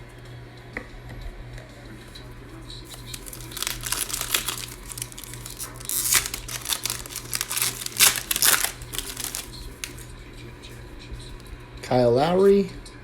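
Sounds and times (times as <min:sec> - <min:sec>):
plastic wrapper tearing and crinkling: 0:02.8 - 0:10.1.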